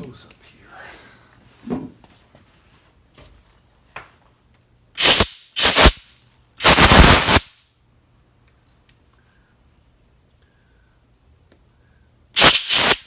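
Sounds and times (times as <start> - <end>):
compressed air blow gun bursts: 5.0 - 6.0, 6.6 - 7.6, 12.4 - 13.0.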